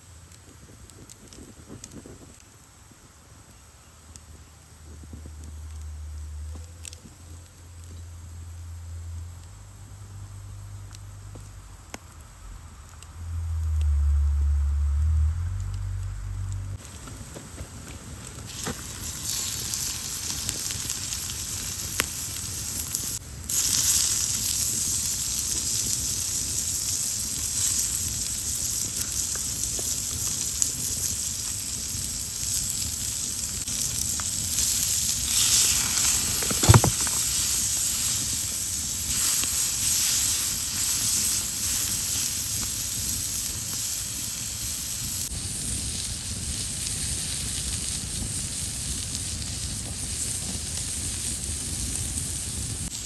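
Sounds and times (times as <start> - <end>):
wood fire crackling: 0.0 - 53.0
loud pop from fire: 33.6 - 43.9.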